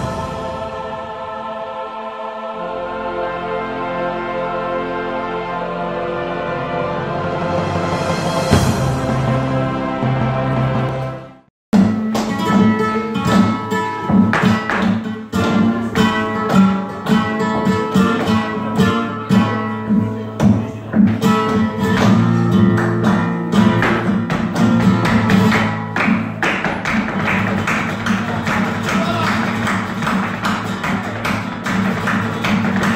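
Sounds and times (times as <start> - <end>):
flamenco guitar music: 11.8 - 32.9.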